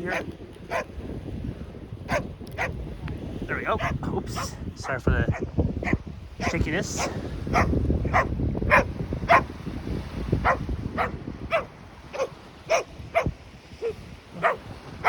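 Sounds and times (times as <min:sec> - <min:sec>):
dog barking: 0:00.1 - 0:00.9, 0:02.1 - 0:02.8, 0:03.8 - 0:04.6, 0:05.3 - 0:09.5, 0:10.4 - 0:15.0.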